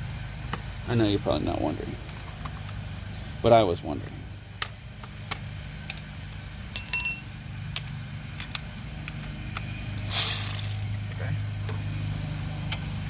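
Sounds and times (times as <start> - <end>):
low steady hum: 0.0 - 13.0
ringing metal clink: 6.7 - 7.3.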